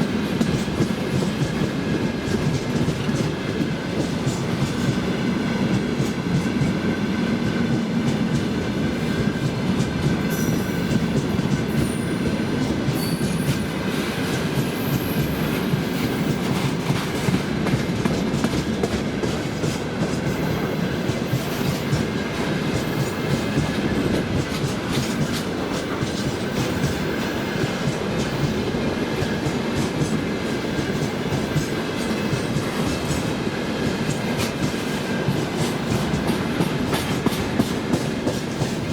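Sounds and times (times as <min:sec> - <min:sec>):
train wheels clattering over rail joints: 0:00.0 - 0:05.1, 0:07.7 - 0:38.9
high wheel squeals: 0:13.0 - 0:13.6.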